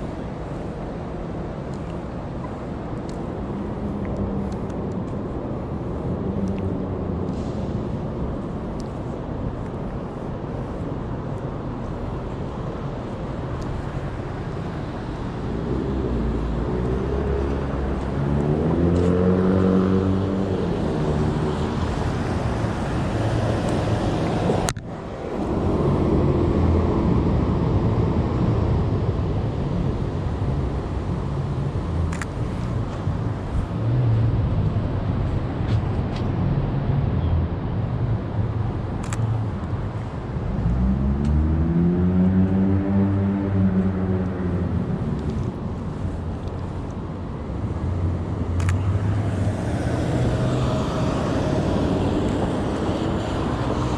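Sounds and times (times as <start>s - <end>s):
vehicle engine accelerating: 15.5s - 24.2s, 40.5s - 45.5s.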